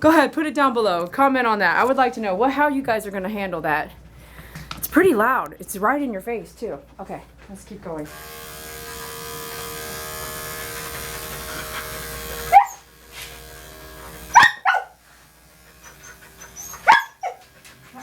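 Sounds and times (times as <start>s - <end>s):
electric clippers humming: 8.0s - 18.0s
dog barking: 12.5s - 12.9s, 14.3s - 15.0s, 16.0s - 18.0s.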